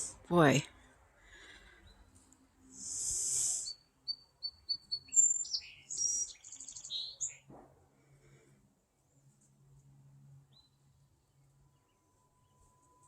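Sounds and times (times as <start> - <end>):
small birds chirping: 1.5 - 7.5.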